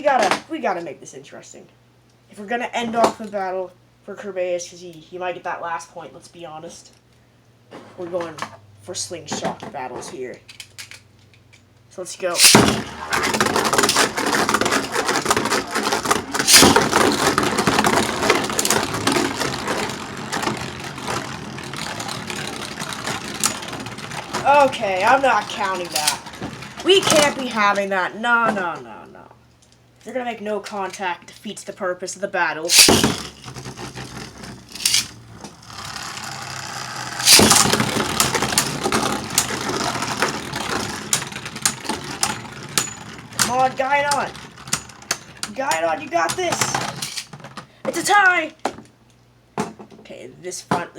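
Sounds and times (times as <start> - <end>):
sharp clack: 12.4 - 18.9, 25.9 - 26.2, 32.7 - 33.4, 34.7 - 35.1, 37.2 - 37.9
spinning tops scraping plastic: 12.4 - 27.4, 32.7 - 42.8, 46.5 - 47.3.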